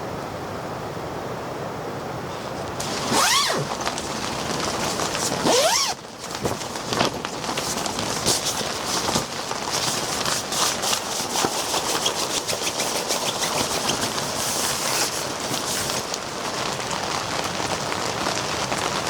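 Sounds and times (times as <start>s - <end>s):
small clicks and crackles: 2.5s - 19.0s
zipper pulled: 2.8s - 16.1s.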